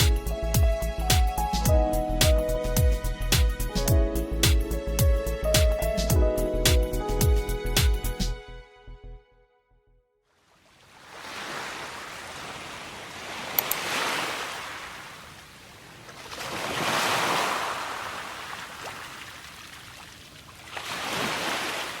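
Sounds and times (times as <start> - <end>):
sea waves washing on shore: 10.5 - 22.0
sharp clicks: 13.6 - 13.8.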